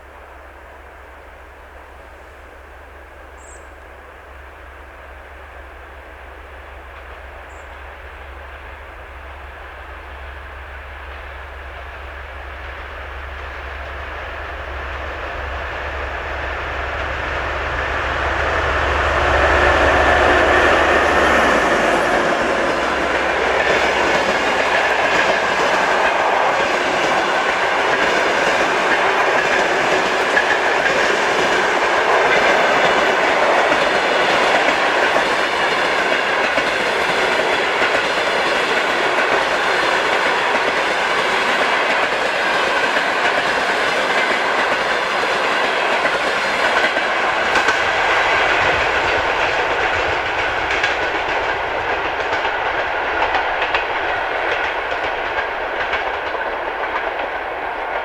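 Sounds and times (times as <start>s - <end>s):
train coaches rolling past: 0.0s - 58.0s
wheels clicking over rail joints: 16.8s - 58.0s.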